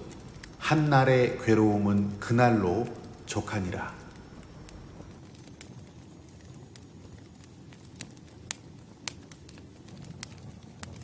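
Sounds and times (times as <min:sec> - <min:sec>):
campfire flames rumbling: 0:00.0 - 0:11.0
wood crackling and popping: 0:00.0 - 0:11.0.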